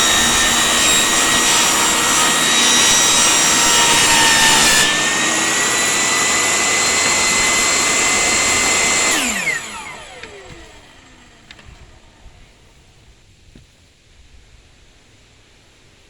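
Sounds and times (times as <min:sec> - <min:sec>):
saw blade winding down: 0:00.0 - 0:12.2
table saw whining: 0:00.0 - 0:12.9.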